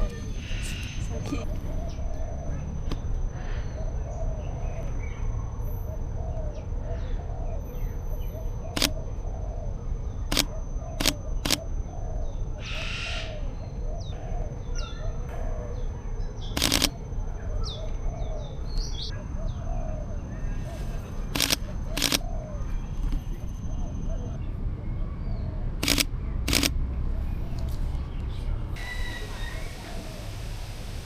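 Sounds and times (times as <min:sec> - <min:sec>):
birds chirping: 0:00.0 - 0:30.3
camera shutter clicking: 0:08.8 - 0:09.0, 0:10.3 - 0:11.6, 0:16.6 - 0:16.9, 0:21.4 - 0:22.2, 0:25.8 - 0:26.8.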